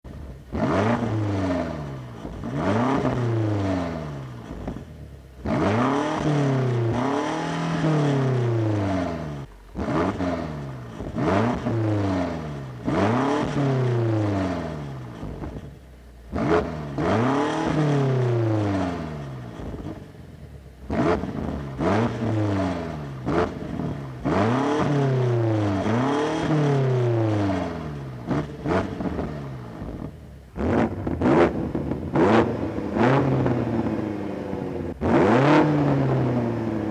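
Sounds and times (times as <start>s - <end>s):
car engine accelerating hard: 0.1s - 20.2s, 20.8s - 36.9s.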